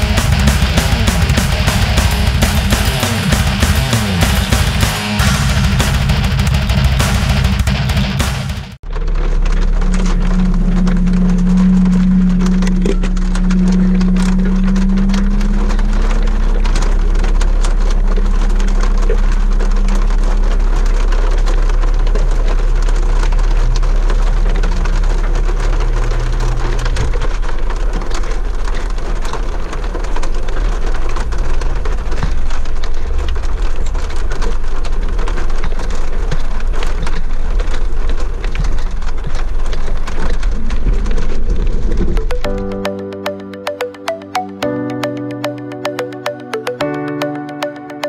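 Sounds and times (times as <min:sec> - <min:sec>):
vehicle rumbling on dirt trail: 0:08.8 - 0:42.4
rain pattering on windshield: 0:08.8 - 0:44.0.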